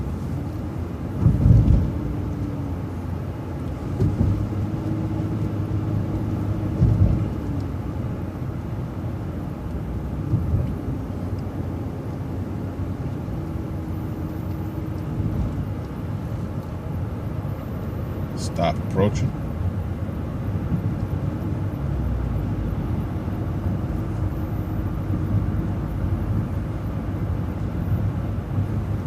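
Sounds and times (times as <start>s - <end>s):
bus engine hum: 0.0s - 29.0s
road rumble: 0.0s - 29.0s
thumps over bumps: 1.1s - 2.1s, 3.9s - 4.5s, 6.7s - 7.6s, 10.2s - 10.8s.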